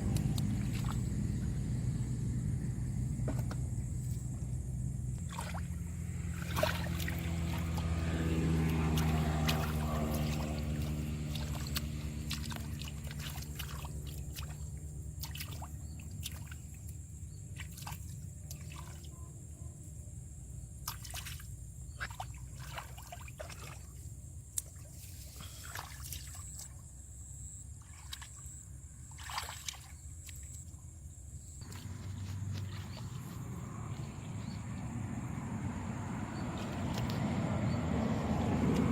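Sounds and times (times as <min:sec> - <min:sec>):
water dripping and splashing: 0:00.0 - 0:01.2, 0:05.2 - 0:17.0, 0:17.6 - 0:19.0, 0:20.8 - 0:25.0, 0:25.6 - 0:26.8, 0:27.8 - 0:28.5, 0:29.1 - 0:30.5, 0:31.6 - 0:34.1, 0:36.4 - 0:38.9
motor hum: 0:00.0 - 0:18.4, 0:31.5 - 0:38.9
low steady rumble: 0:00.0 - 0:20.8, 0:30.8 - 0:38.9.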